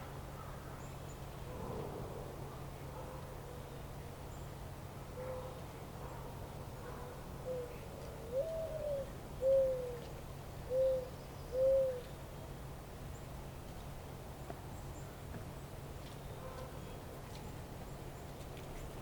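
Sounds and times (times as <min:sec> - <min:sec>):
bird hooting coo: 0:07.4 - 0:10.0, 0:10.7 - 0:12.1.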